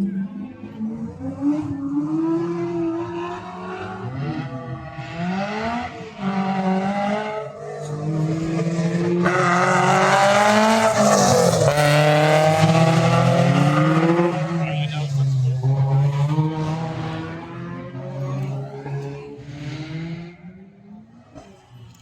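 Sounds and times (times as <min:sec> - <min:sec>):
race car engines revving: 0:00.0 - 0:22.0
race car passing: 0:00.0 - 0:22.0.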